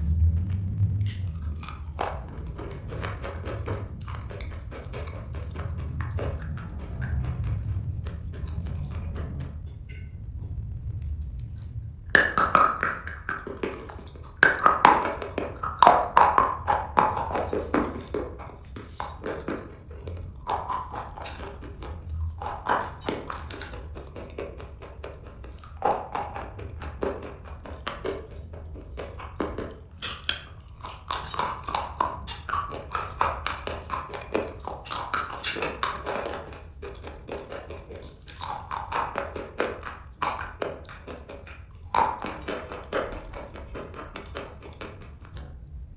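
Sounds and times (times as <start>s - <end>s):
chalk crunching while chewed: 1.1s - 7.7s, 12.8s - 24.4s, 25.0s - 43.4s.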